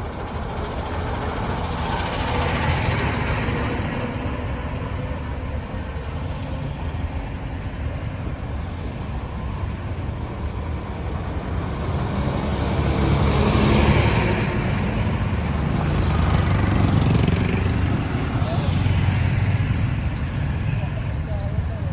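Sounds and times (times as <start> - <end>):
traffic engine rumble: 0.0 - 21.9
vehicle passing close: 11.4 - 21.9.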